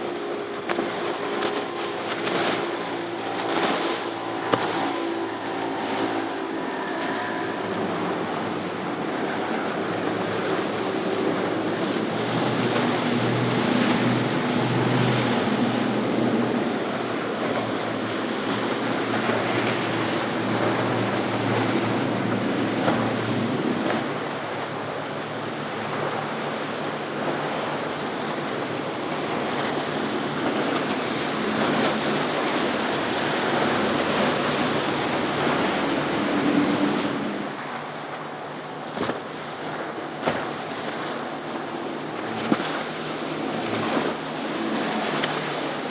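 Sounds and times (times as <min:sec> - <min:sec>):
outboard engines droning: 0:00.0 - 0:45.9
rush of wake and surf: 0:00.0 - 0:45.9
wind on microphone: 0:27.1 - 0:37.6.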